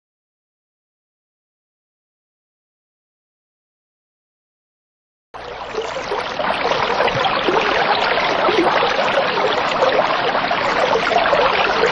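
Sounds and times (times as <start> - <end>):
running water splashing: 5.5 - 11.9.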